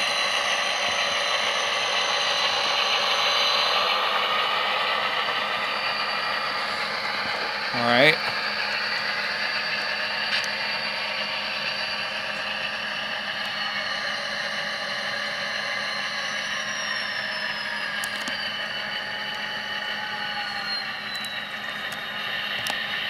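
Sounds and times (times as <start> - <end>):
thin whining diesel engine drone: 0.0 - 23.0.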